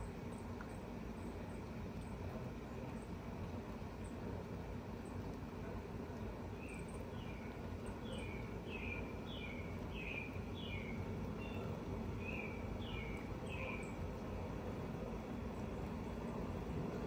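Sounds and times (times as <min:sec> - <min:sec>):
low background rumble: 0:00.0 - 0:17.0
bird chirping: 0:08.0 - 0:14.0.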